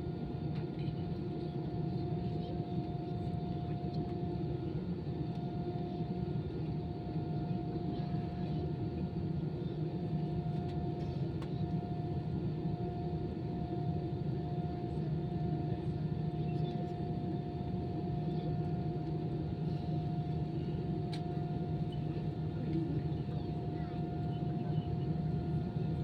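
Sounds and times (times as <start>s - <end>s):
aircraft cabin drone: 9.6s - 26.0s.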